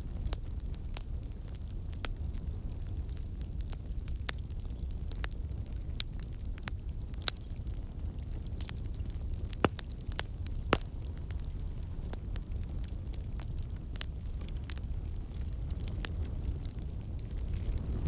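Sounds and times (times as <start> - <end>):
low fire rumble: 0.0 - 18.0
wood fire crackling: 0.0 - 18.0
sharp pops of burning wood: 6.0 - 18.0.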